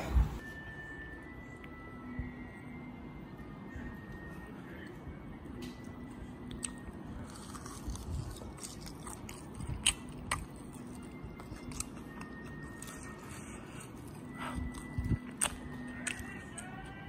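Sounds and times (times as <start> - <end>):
person chewing crunchy food: 6.4 - 17.0.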